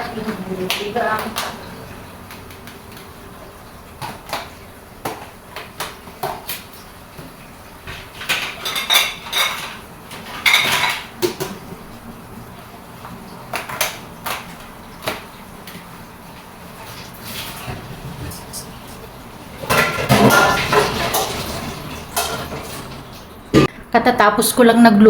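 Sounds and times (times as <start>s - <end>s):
dishes and cutlery clattering: 7.9s - 11.7s, 17.3s - 23.7s.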